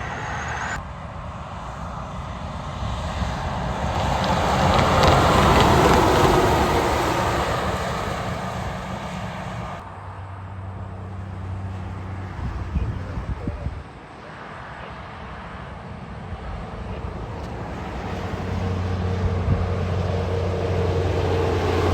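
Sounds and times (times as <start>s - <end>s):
low engine hum: 0.0s - 21.9s
truck passing on wet road: 2.6s - 12.7s, 15.0s - 21.9s.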